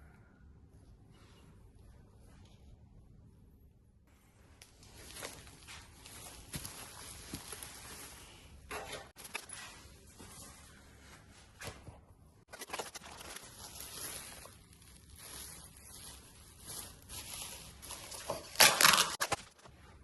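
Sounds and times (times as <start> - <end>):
packaging rustling and crinkling: 4.8 - 8.4, 12.5 - 19.7.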